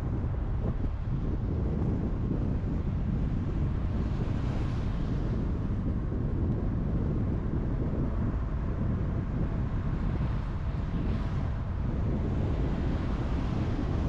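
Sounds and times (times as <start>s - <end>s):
car road and wind noise: 0.0s - 14.0s.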